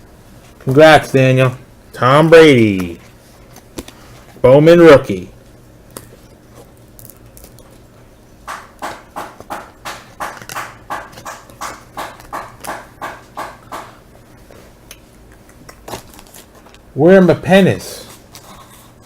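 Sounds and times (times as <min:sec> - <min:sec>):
sharp knocks: 0:08.4 - 0:14.0.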